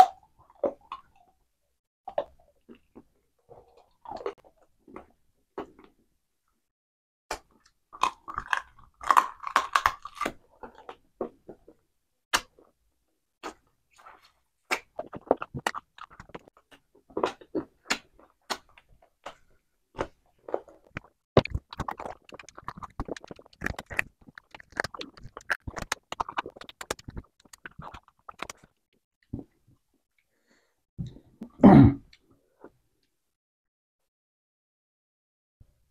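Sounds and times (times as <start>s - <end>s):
man chewing wetly: 7.5s - 11.4s, 13.4s - 19.4s, 20.0s - 29.4s
lip smacks: 20.9s - 28.7s.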